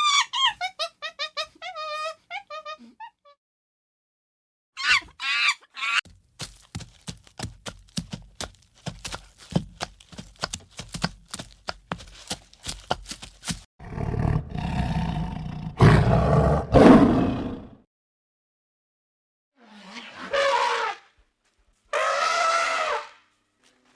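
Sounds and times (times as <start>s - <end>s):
animal squeaky calls: 4.8s - 6.0s.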